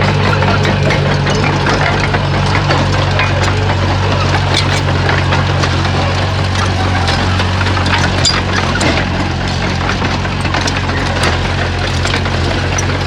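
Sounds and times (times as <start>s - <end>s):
bulldozer diesel engine running: 0.0s - 13.0s.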